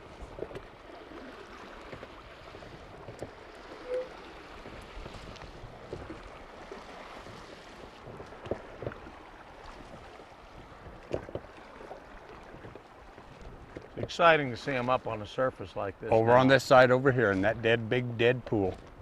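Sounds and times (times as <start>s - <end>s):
knocks and splashes: 0.0s - 14.2s
river water running: 0.0s - 19.0s.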